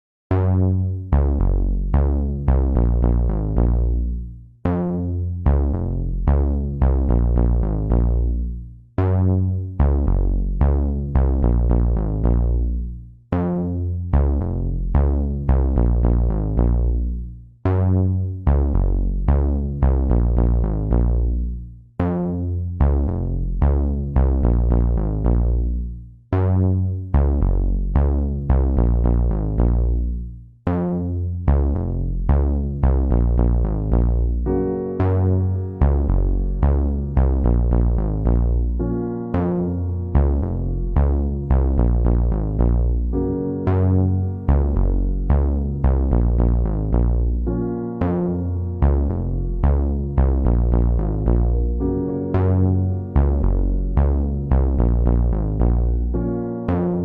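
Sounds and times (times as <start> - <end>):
electronic synthesizer music: 0.3 - 57.0
heavy bass: 0.3 - 57.0.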